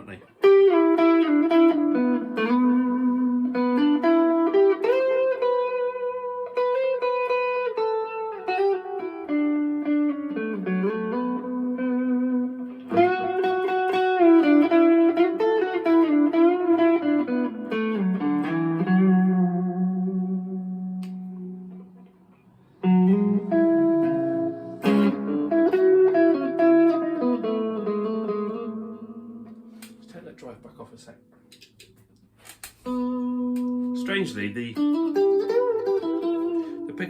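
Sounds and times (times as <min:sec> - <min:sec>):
overdriven electric guitar lead: 0:00.0 - 0:37.0.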